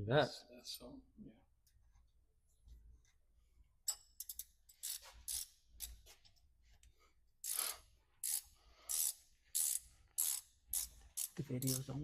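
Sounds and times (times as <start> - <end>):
ratchet wrench clicking: 3.9 - 6.0, 7.4 - 12.0.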